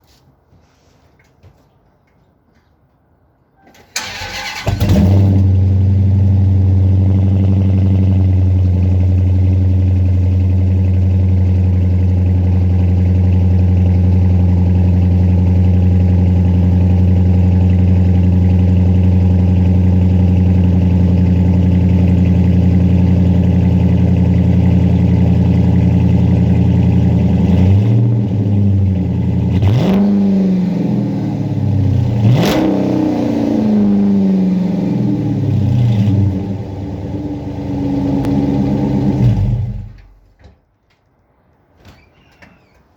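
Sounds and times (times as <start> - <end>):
car engine starting and idling: 3.8 - 40.3
engine revving: 4.0 - 14.7, 21.6 - 40.1.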